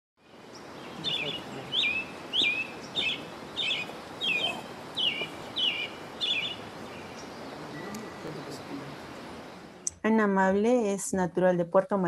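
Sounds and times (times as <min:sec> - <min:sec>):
bird calling: 0:00.2 - 0:09.8
background hiss: 0:00.2 - 0:11.0.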